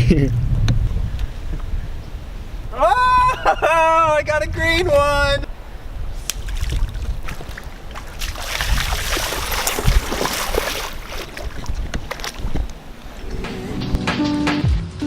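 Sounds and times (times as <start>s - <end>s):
wind rumbling on microphone: 0.0s - 14.1s
music: 13.3s - 15.0s.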